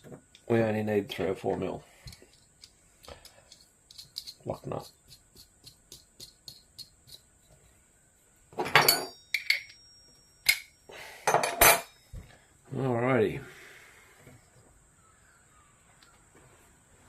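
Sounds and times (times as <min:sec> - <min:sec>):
small metal parts clinking: 0:08.6 - 0:12.0.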